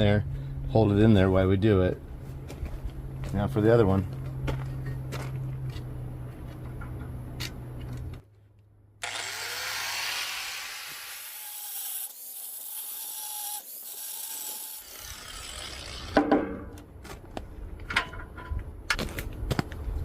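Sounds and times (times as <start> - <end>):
low hum: 0.0 - 9.3
bench grinder grinding metal: 9.0 - 16.2.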